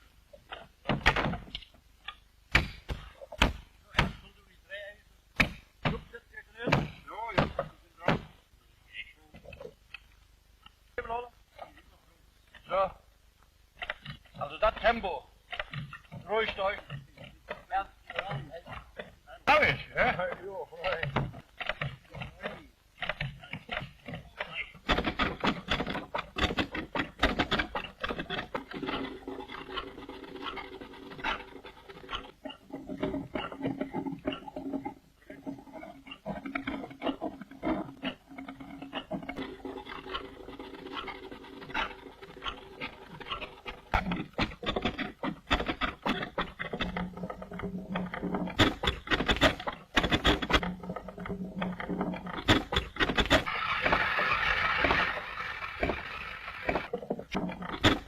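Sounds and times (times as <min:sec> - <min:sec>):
rapid irregular knocks and clicks: 0:00.0 - 0:58.0
cutting tool scraping spinning wood: 0:13.8 - 0:58.0.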